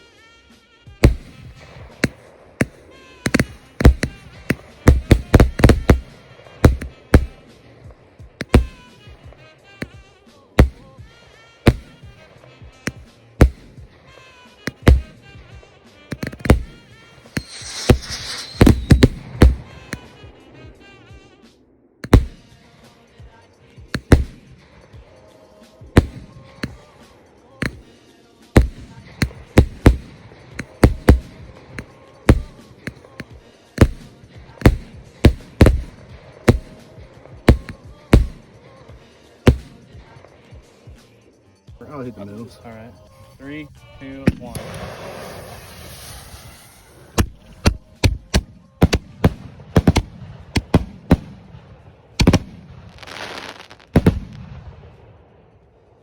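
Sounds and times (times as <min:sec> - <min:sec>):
firework reports: 0:01.0 - 0:23.2, 0:23.9 - 0:41.0, 0:41.7 - 0:56.0
hissing crackle: 0:16.1 - 0:20.8, 0:44.5 - 0:47.8, 0:48.8 - 0:55.1.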